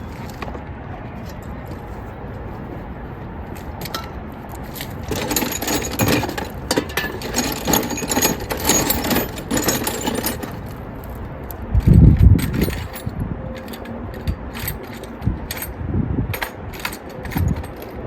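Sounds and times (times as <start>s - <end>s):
metal tools clicking and rattling: 3.6s - 18.0s.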